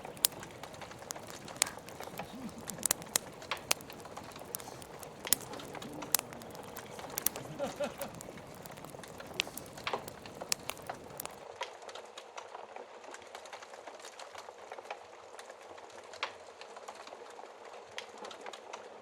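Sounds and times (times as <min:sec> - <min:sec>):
log fire crackling: 0:00.0 - 0:11.4
rain hiss: 0:00.0 - 0:11.4.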